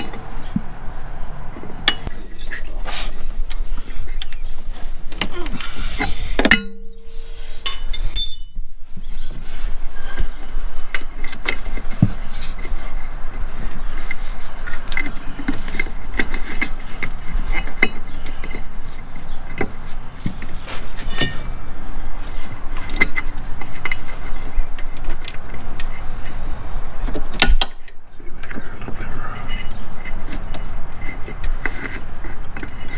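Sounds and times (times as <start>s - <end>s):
metallic ringing: 6.5s - 8.7s, 21.0s - 22.6s
hand tools clinking and knocking: 7.6s - 8.7s, 20.4s - 24.1s.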